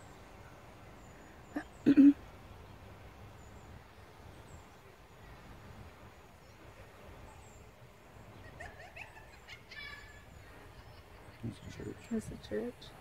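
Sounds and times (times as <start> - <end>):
low outdoor rumble: 0.0 - 13.0
rising bird calls: 8.4 - 11.4.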